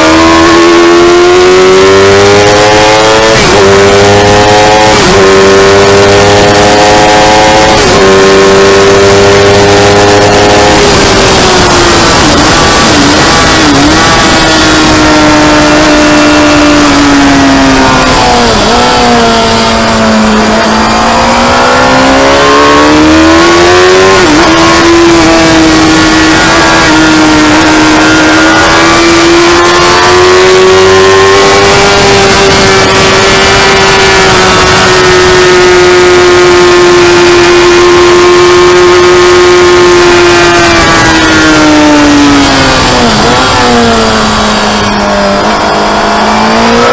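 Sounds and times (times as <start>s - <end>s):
motorcycle engine at high revs: 0.0s - 46.9s
loud rushing noise: 6.2s - 34.8s.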